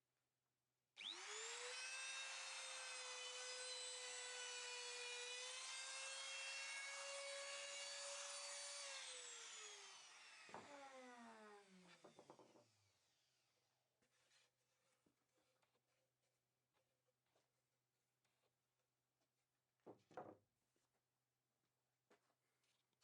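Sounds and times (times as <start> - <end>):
power tool motor whining: 1.0 - 11.9.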